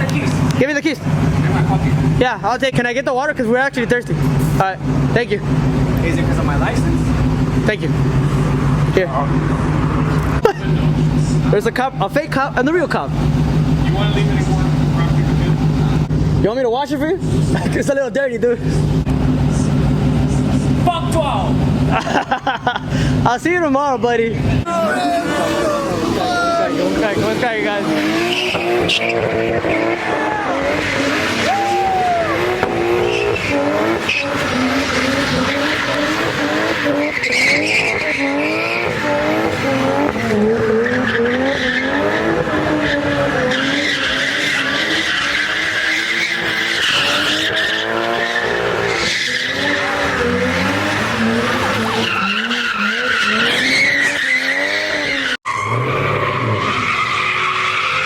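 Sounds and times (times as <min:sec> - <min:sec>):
car engines revving: 0:00.0 - 0:58.0
tyres squealing and skidding: 0:24.4 - 0:58.0.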